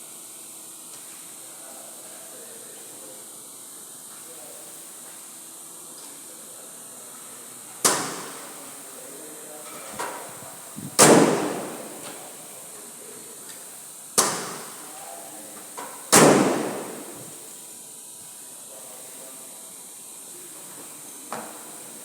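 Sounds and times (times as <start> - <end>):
loud sharp bangs: 7.9 - 8.6, 10.8 - 12.4, 14.2 - 14.9, 16.1 - 17.5.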